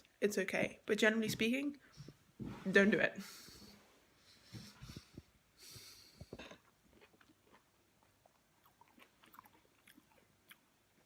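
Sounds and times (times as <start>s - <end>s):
person chewing food: 5.6s - 11.0s.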